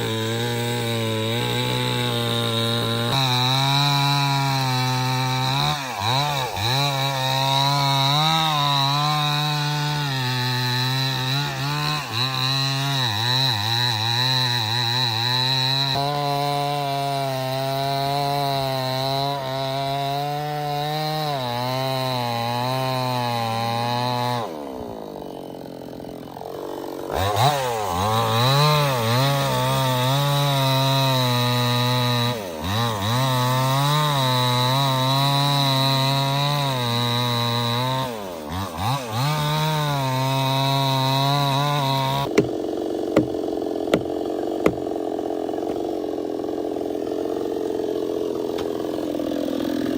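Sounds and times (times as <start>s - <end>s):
chainsaw cutting wood: 0.0s - 49.9s
sharp knocks: 42.2s - 42.6s, 43.2s - 44.9s.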